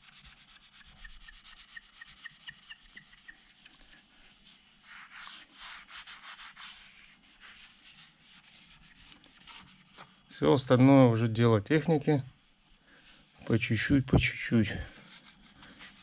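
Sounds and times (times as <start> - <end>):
glass being scrubbed: 0.0 - 4.0.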